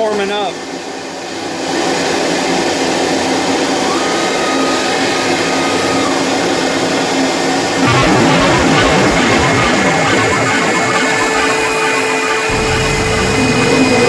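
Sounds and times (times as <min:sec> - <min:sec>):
faint steady whine: 0:07.6 - 0:14.0
router mechanical drone: 0:07.7 - 0:14.0.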